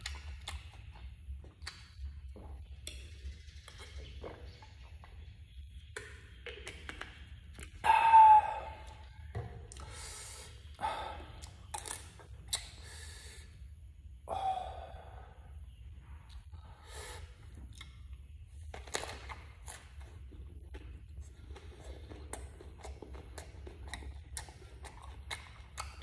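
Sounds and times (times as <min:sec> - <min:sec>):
person chewing and crunching food: 0:00.0 - 0:12.9, 0:17.4 - 0:26.0
bite clicks: 0:11.4 - 0:12.9, 0:17.7 - 0:26.0
gasping vocal sound: 0:14.3 - 0:15.4.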